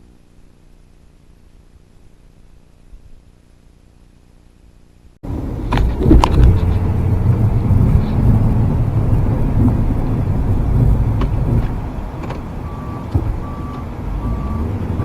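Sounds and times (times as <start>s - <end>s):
faint hum: 0.0s - 14.6s
truck engine rumbling: 5.2s - 15.0s
knocks and clatters: 5.6s - 13.8s.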